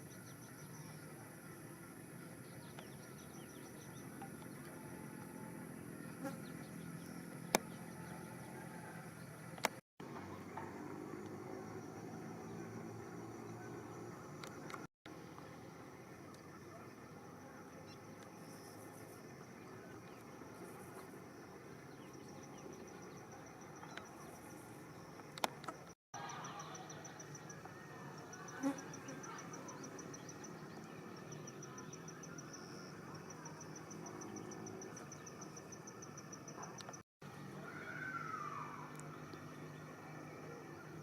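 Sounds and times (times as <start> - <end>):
insects chirping in trills: 0.0 - 9.6, 16.2 - 37.0.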